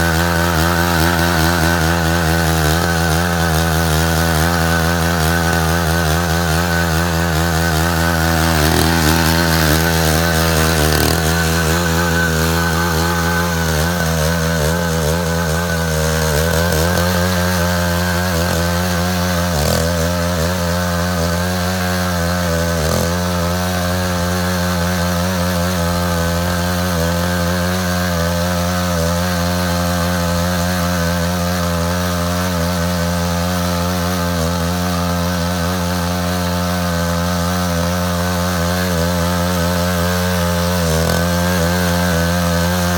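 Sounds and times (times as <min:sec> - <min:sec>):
power tiller engine running: 0:00.0 - 0:42.9.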